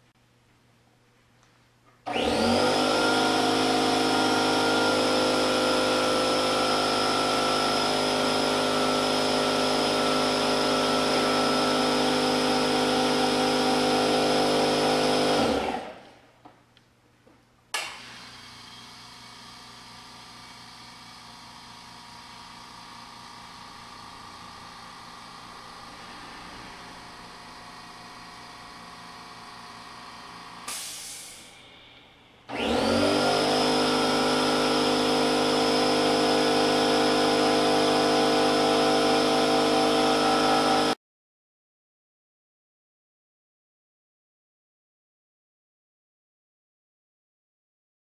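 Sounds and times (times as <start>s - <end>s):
air compressor running: 2.0s - 16.2s, 17.8s - 41.0s.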